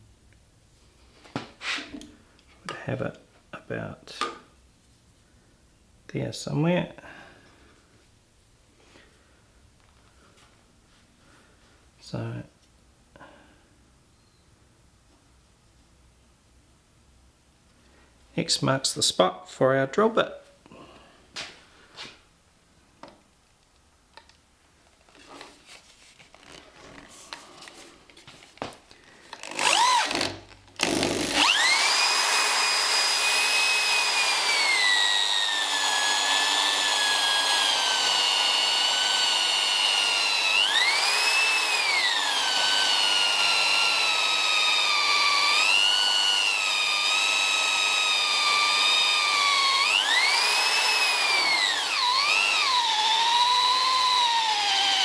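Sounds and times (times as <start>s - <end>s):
electric drill boring into wood: 29.3s - 55.0s.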